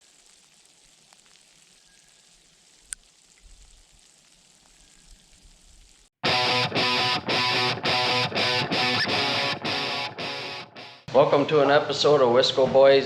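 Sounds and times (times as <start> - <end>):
faint steady hiss: 0.0 - 6.1
loud guitar music: 6.2 - 12.2.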